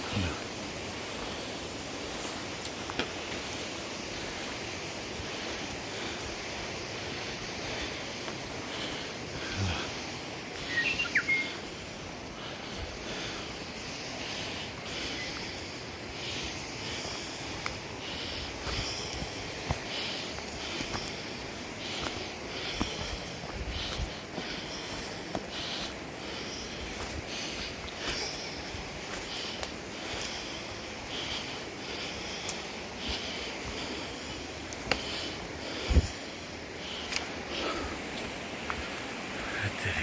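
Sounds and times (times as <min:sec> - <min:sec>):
birds chirping: 0:03.2 - 0:40.0
sharp high chirps: 0:10.6 - 0:11.6.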